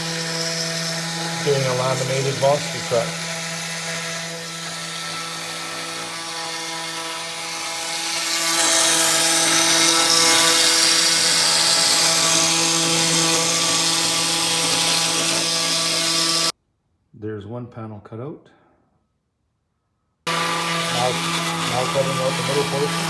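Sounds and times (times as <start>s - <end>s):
bit cutting wood hiss: 0.0s - 16.5s
router spindle whining: 0.0s - 16.5s, 20.3s - 23.0s.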